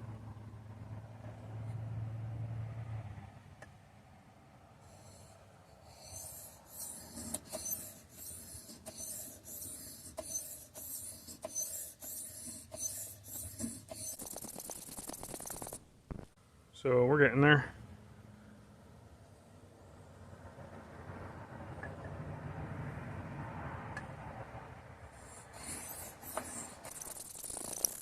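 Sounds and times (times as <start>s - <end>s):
blade scraping on whetstone: 5.8s - 14.6s, 25.2s - 28.0s.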